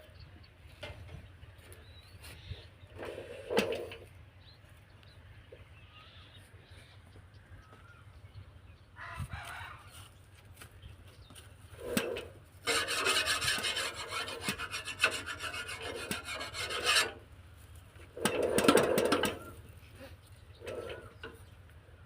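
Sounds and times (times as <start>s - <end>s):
rasping scraping noise: 11.7s - 17.3s, 18.0s - 19.6s, 20.6s - 21.3s.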